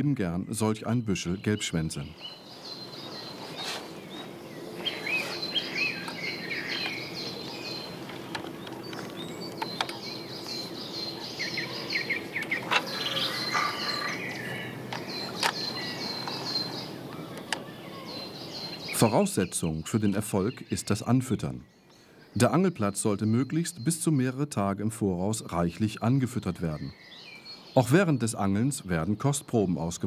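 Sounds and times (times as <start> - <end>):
whistled and warbled bird notes: 0.0 - 24.5
low background hum: 0.0 - 29.2
rapid high bird chirps: 0.9 - 24.2
sharp clicks: 8.0 - 10.6, 14.3 - 16.4.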